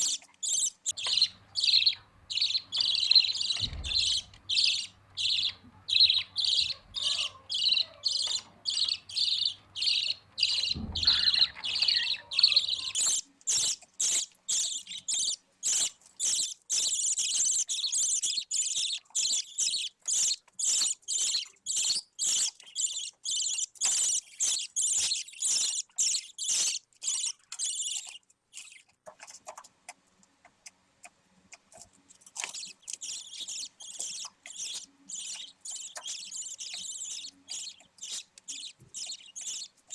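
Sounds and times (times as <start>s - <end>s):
budgie chick raspy calls: 0.0s - 18.2s.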